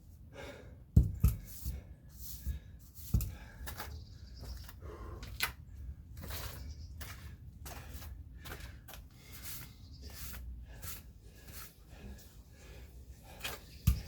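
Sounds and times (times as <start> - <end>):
man breathing hard: 0.2 - 1.0, 1.6 - 3.9, 4.7 - 5.8, 7.6 - 9.8, 10.6 - 13.8.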